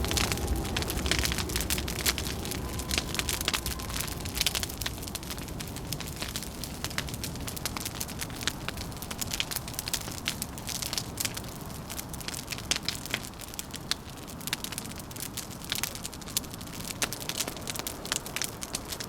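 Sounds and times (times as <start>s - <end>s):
low steady rumble: 0.0s - 10.9s
wood fire crackling: 0.0s - 19.0s.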